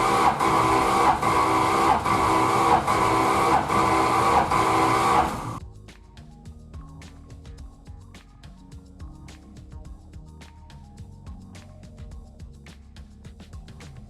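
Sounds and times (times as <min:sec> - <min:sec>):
engine cranking by starter motor: 0:00.0 - 0:05.6.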